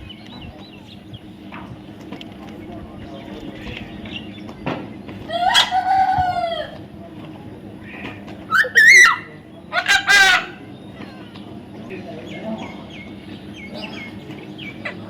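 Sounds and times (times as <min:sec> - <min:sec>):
long arching bird call: 0:03.0 - 0:06.8, 0:07.7 - 0:15.0
warbling bird call: 0:03.0 - 0:06.8, 0:07.8 - 0:11.4
quick trilling bird call: 0:07.8 - 0:10.6.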